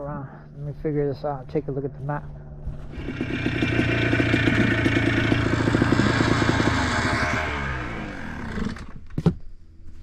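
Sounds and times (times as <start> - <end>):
atv engine rattling: 2.9 - 8.9.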